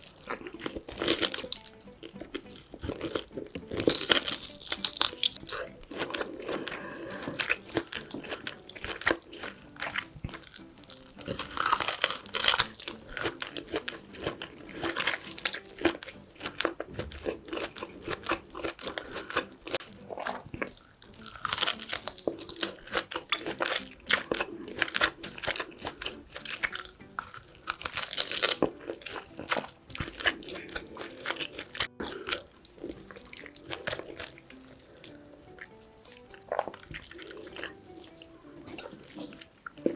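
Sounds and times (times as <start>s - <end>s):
crunchy chewing and biting: 0.0s - 39.9s.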